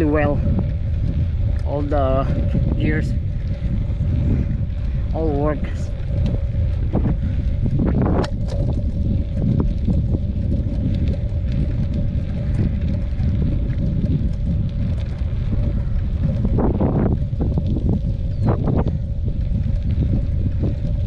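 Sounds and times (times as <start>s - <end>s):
faint steady whine: 0.0s - 21.0s
wind buffeting microphone: 0.0s - 21.0s
scattered clicks: 4.8s - 18.9s.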